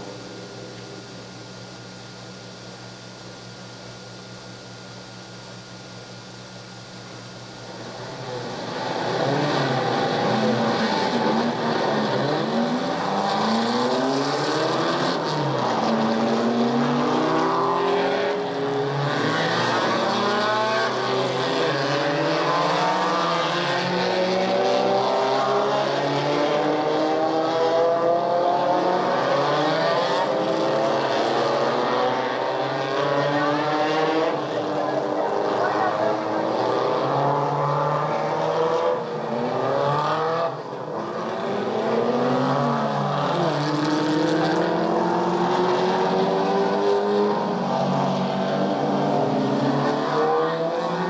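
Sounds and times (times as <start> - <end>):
tape hiss: 0.0 - 23.0
engines rising and falling in pitch: 8.0 - 51.0.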